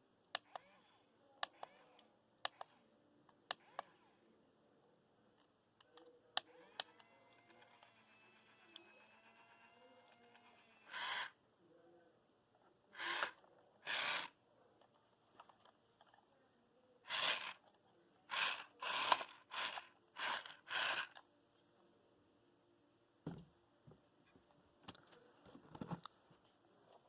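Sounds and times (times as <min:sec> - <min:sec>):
toy electric motor whirring: 0:00.4 - 0:02.6, 0:06.4 - 0:11.4, 0:13.0 - 0:14.4, 0:17.0 - 0:17.7, 0:18.3 - 0:21.2.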